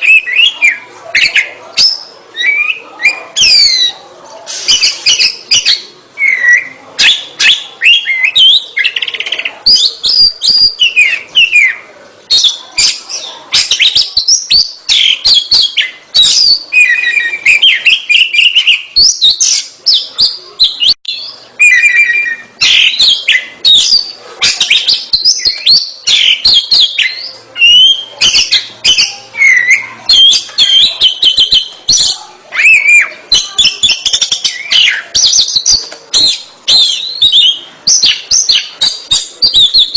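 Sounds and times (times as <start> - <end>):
bird singing whistles and clicks: 24.6 - 29.1.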